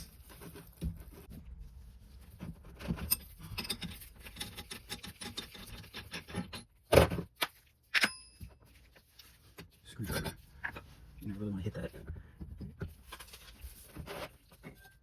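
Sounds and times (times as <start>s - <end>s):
metal hand tools clicking and scraping: 3.0s - 6.7s.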